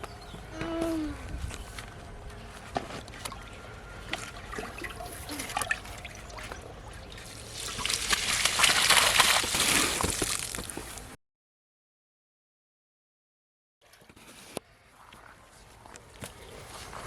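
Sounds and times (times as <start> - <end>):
water splashing and trickling: 3.0 - 11.1.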